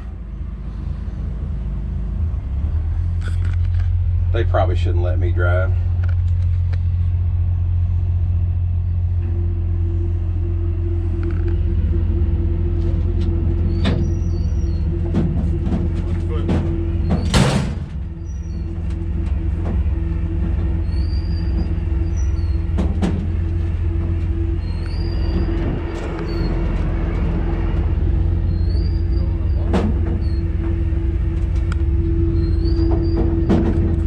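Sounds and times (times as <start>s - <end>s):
truck engine droning: 0.0s - 34.0s
short high squeaks: 13.5s - 15.6s, 16.2s - 34.0s.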